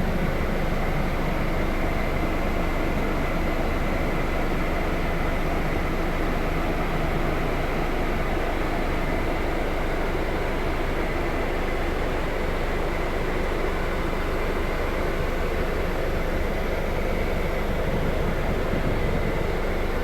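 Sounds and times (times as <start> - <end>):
coach engine rumble: 17.5 - 20.0.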